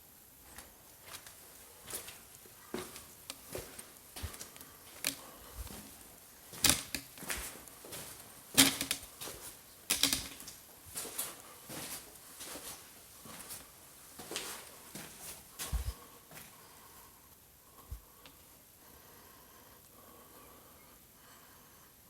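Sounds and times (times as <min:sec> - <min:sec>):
irregular clicks and taps: 0:08.6 - 0:09.0, 0:09.9 - 0:10.6.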